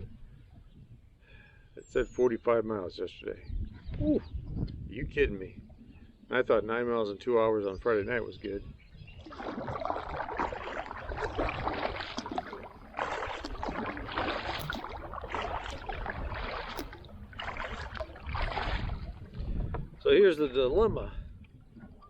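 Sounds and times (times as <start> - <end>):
paddle splashing through water: 9.0 - 20.0.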